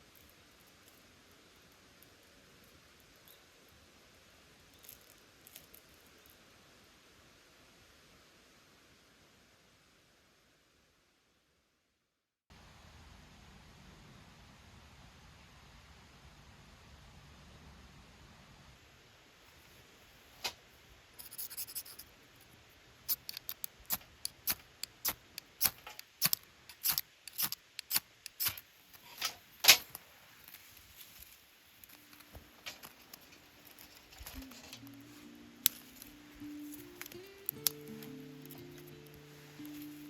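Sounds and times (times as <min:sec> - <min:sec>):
sharp snips or clicks: 0:23.1 - 0:28.6
soft music: 0:31.9 - 0:40.0.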